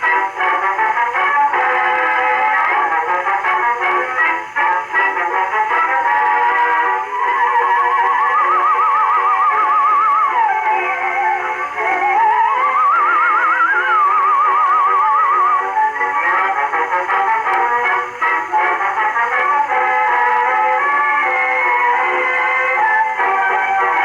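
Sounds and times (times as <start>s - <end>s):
gramophone record playing: 0.0s - 24.0s.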